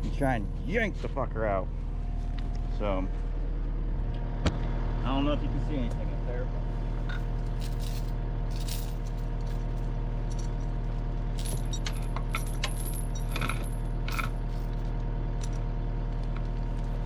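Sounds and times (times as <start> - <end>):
diesel engine idling: 0.0 - 17.0
metal chain clinking and rattling: 7.0 - 15.6.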